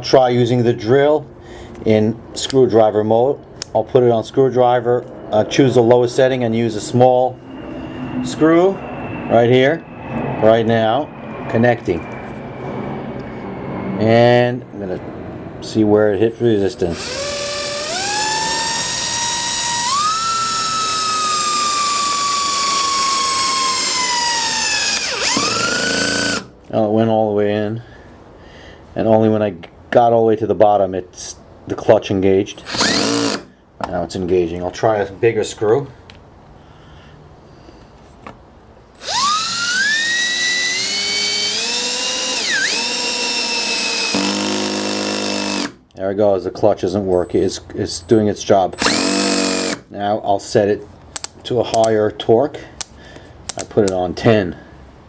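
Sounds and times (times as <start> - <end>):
drill motor whining: 16.8 - 26.5, 32.6 - 33.5, 39.0 - 45.8, 48.8 - 49.8.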